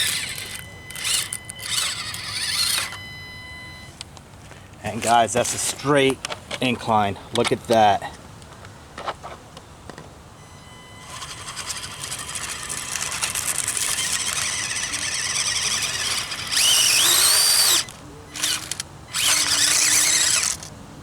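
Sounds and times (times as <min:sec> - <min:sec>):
full-throttle motor bursts: 0:00.0 - 0:03.0, 0:10.4 - 0:20.7
small electric motor whining: 0:00.0 - 0:03.9, 0:10.4 - 0:20.7.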